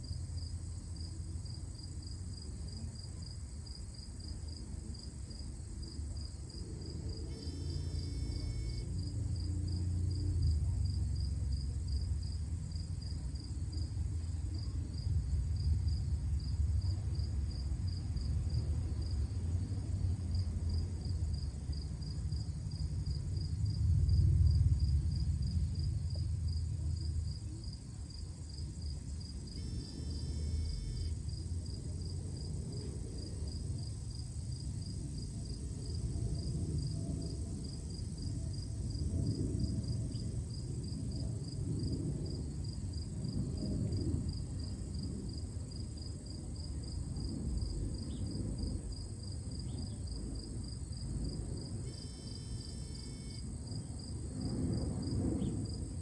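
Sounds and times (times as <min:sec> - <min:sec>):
cricket chirping: 0:00.0 - 0:56.0
low rumble: 0:23.0 - 0:27.5.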